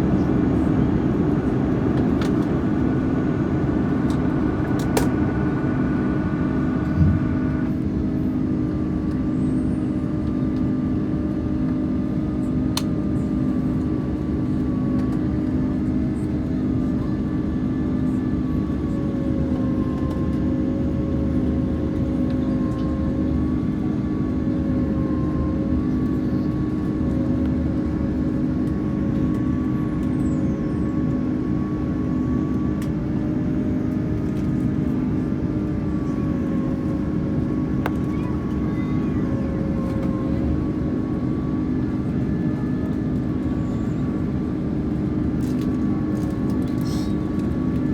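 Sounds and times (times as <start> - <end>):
airplane cabin drone: 0.0 - 47.9
faint wavering whine: 3.0 - 10.1.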